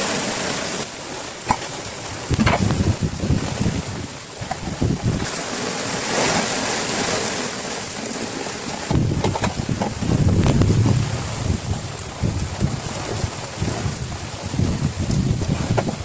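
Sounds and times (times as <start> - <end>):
heavy rain hiss: 0.0 - 16.0
storm wind gusting on microphone: 1.4 - 5.8, 8.6 - 16.0
small knocks: 8.9 - 10.0.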